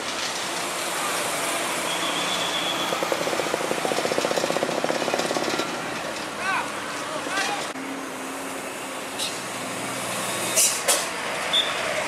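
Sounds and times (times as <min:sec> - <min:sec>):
heavy diesel machinery running: 0:00.2 - 0:07.8.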